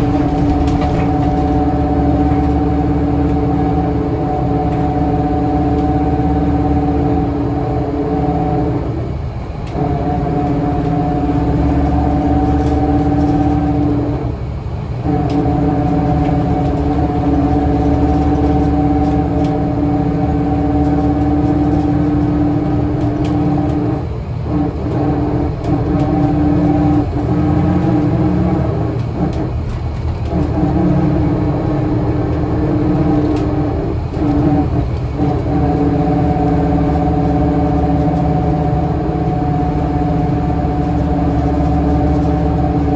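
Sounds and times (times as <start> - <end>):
bus engine droning: 0.0 - 42.9.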